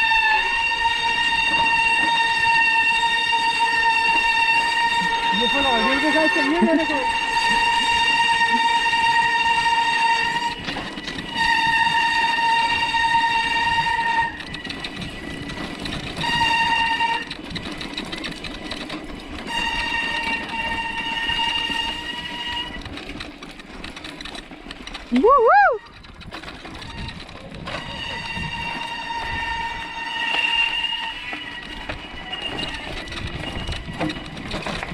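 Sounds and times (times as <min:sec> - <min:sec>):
bicycle brakes squealing: 0:00.0 - 0:23.3, 0:24.9 - 0:34.9
bicycle tyres rolling on rough ground: 0:00.0 - 0:34.9.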